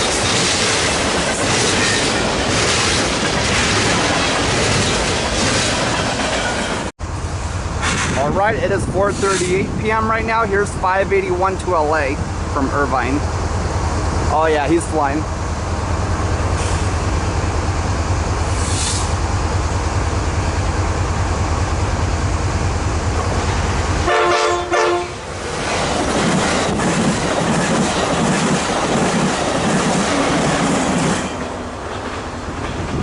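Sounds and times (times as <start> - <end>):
train wheels clattering on rails: 0.0 - 6.9, 7.8 - 8.3, 25.4 - 33.0
diesel locomotive rumble: 0.0 - 33.0
train horn blast: 24.0 - 25.2.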